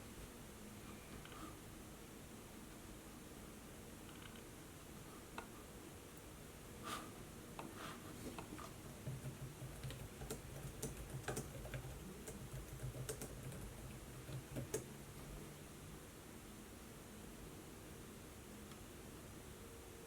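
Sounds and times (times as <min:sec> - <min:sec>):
laptop keyboard typing: 0:08.7 - 0:14.9.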